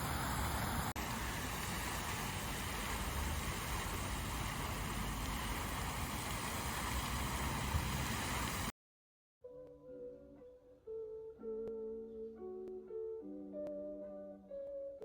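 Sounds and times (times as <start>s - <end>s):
wind and ride noise: 0.0s - 8.7s.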